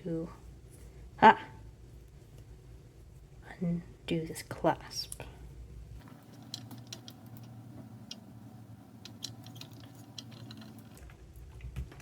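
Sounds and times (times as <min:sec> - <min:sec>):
faint low hum: 0:00.0 - 0:12.0
plastic parts clicking: 0:06.0 - 0:11.1.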